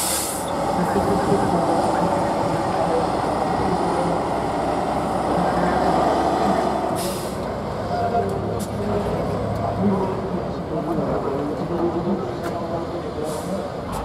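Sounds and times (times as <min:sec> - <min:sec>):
burst of hiss: 0:00.0 - 0:00.5
diesel truck engine running: 0:00.0 - 0:14.0.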